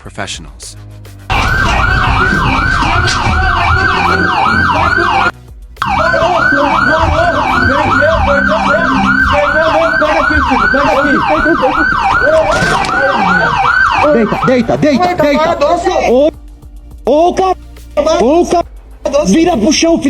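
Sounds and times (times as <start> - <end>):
police siren yelping: 1.3 - 15.6.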